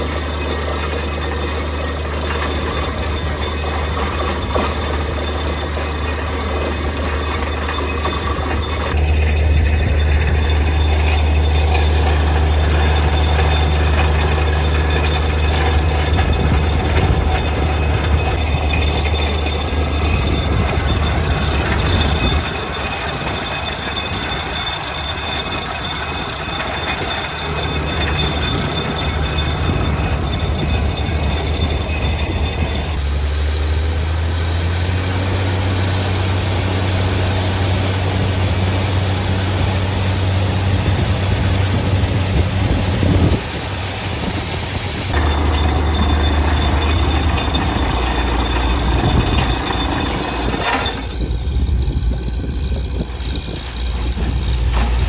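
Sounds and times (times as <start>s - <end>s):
drilling rig engine hum: 0.0s - 55.0s
rough drilling clatter: 0.0s - 55.0s
thin high squeal: 44.2s - 51.7s.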